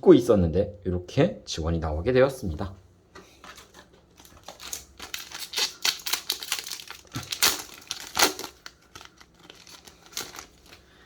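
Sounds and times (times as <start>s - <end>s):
cards and wrappers crinkling: 3.4s - 11.0s.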